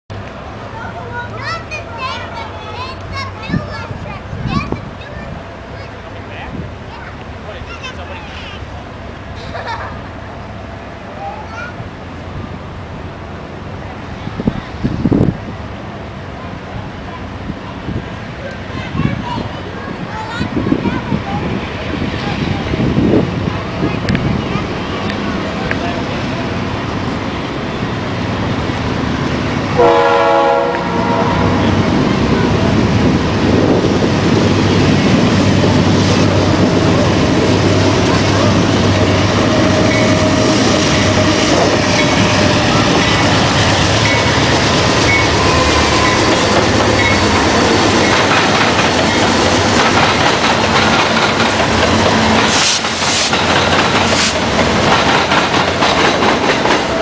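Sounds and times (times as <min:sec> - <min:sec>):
train passing: 0:00.1 - 0:57.0
wheels clattering on rails: 0:13.6 - 0:57.0
locomotive horn blast: 0:29.7 - 0:32.0.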